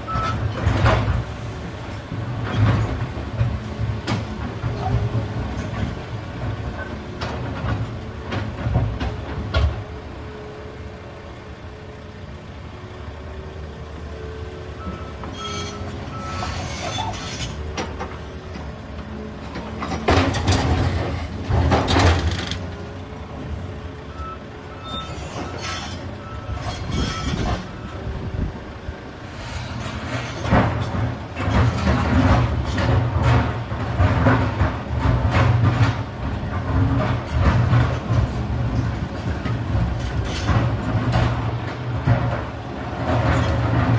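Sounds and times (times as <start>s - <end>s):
excavator diesel engine: 0.0s - 43.9s.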